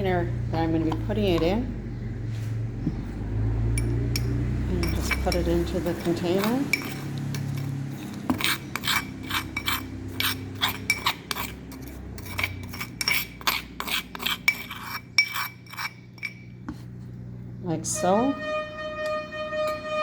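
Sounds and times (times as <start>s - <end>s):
utensil scraping a dish: 3.8s - 17.1s.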